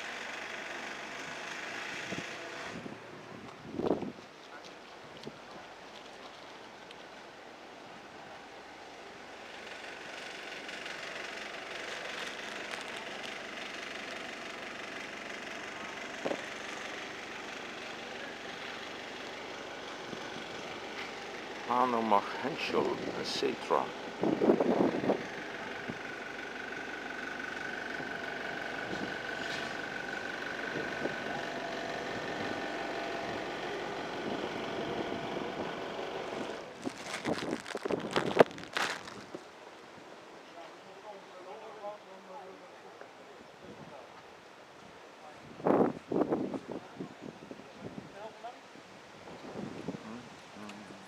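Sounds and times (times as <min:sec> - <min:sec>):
outdoor background noise: 0:00.0 - 0:51.0
engine drone: 0:09.0 - 0:39.4.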